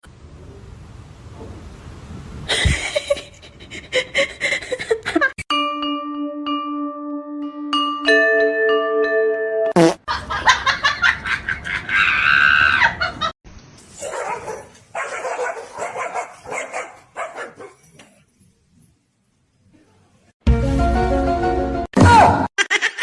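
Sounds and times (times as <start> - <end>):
chiming mallet notes: 5.5 - 9.7.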